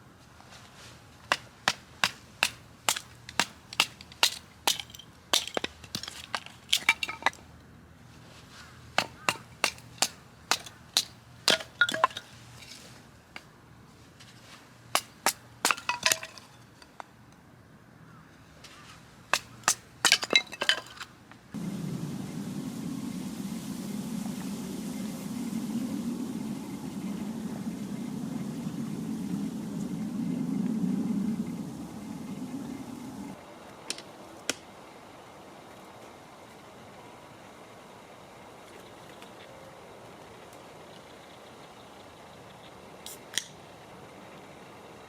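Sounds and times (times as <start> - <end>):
firewood cracking and snapping: 1.3 - 7.4.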